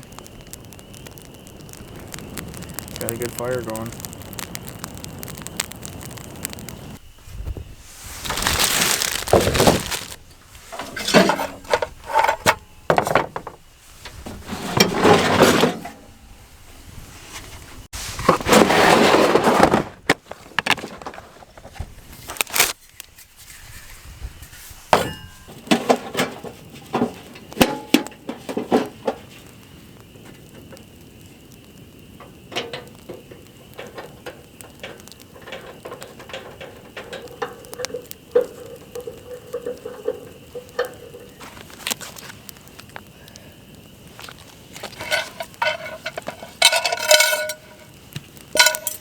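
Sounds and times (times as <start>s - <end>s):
loud rustling: 7.2s - 16.0s
pots and pans clinking: 9.8s - 13.6s, 24.9s - 29.0s, 34.8s - 41.4s, 44.9s - 47.9s, 48.6s - 49.0s.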